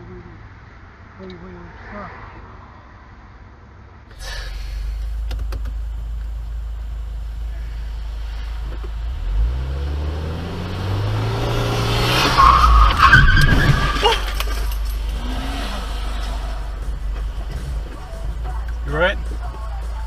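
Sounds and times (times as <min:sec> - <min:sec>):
car engine revving: 0:04.1 - 0:20.0
tyres squealing and skidding: 0:08.2 - 0:19.2.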